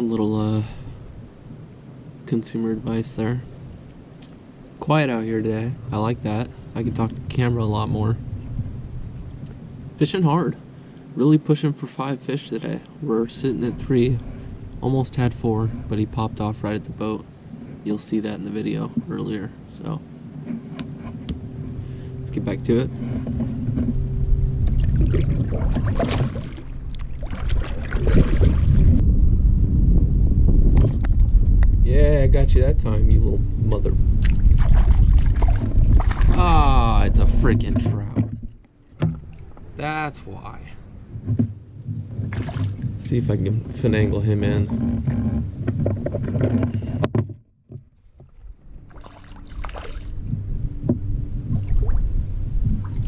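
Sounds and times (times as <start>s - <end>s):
wind rumble on microphone: 4.7s - 10.6s, 12.7s - 53.0s
kayak handling scrapes and splashes: 22.8s - 24.0s, 24.7s - 29.0s, 34.2s - 39.7s, 41.2s - 50.2s.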